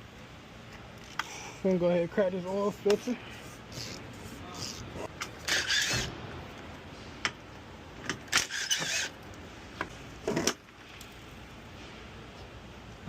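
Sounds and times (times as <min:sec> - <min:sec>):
short hissing rasp: 0:03.1 - 0:06.1, 0:08.4 - 0:09.1.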